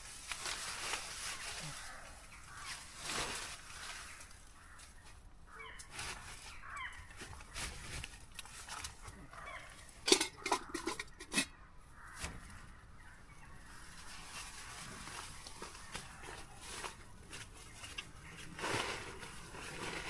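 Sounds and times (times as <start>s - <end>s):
owl calling: 3.7s - 5.9s.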